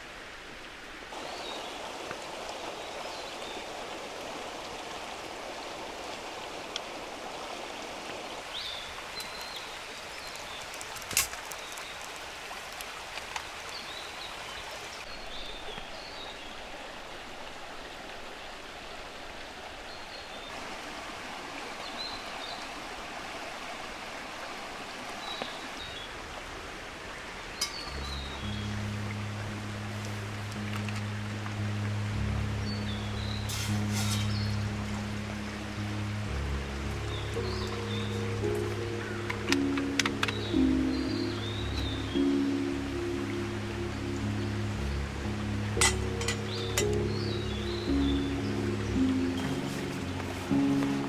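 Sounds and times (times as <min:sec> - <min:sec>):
water rushing: 0:00.0 - 0:51.0.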